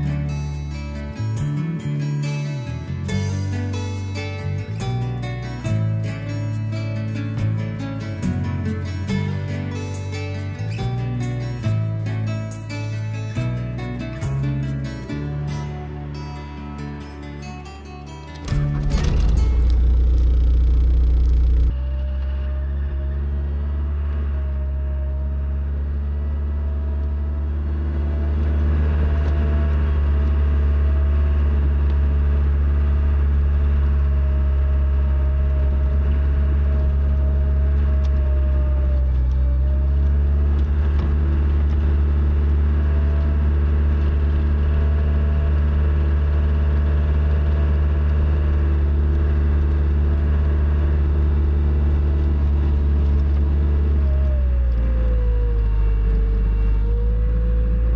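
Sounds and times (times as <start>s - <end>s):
thin whine: 0.0s - 22.3s
loader engine running: 0.0s - 57.9s.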